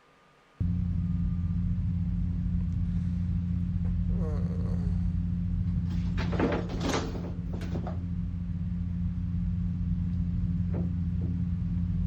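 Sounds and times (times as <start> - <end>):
low droning hum: 0.5 - 12.0
rustling and knocking: 5.9 - 8.0.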